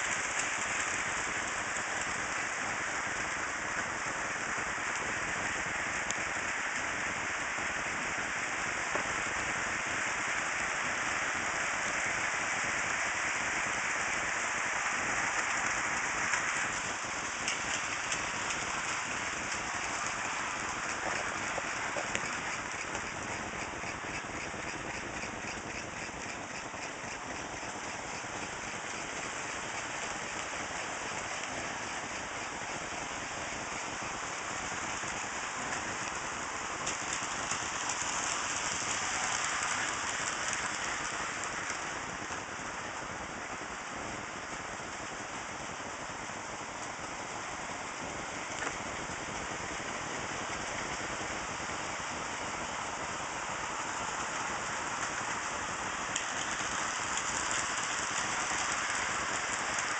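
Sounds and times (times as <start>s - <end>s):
model train wheels on rails: 0.0s - 59.9s.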